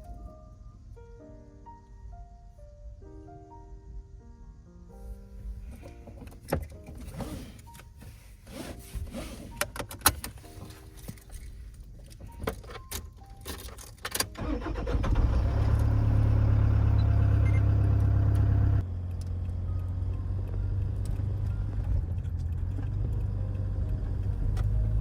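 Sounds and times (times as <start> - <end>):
handling clicks and rattles: 8.8 - 14.4
van engine starting and idling: 12.3 - 25.0.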